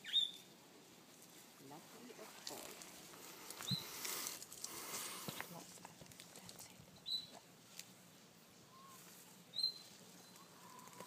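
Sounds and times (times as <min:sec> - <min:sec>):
small bird chirping: 0:00.0 - 0:00.5, 0:03.6 - 0:04.0, 0:07.0 - 0:07.4, 0:08.7 - 0:11.0.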